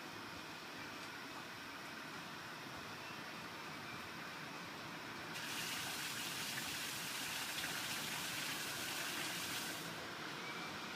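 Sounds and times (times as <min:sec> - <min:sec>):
rain falling: 0:05.4 - 0:09.9.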